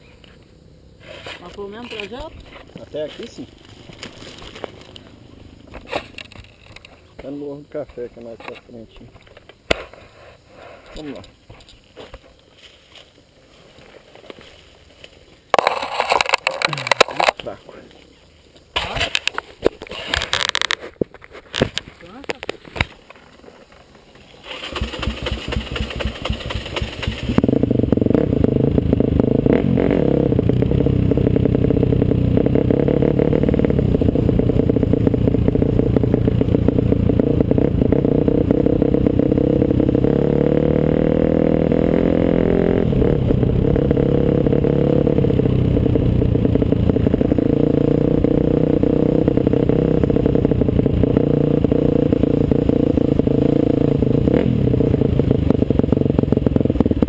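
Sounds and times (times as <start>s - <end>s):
motorcycle engine running: 24.3s - 57.0s.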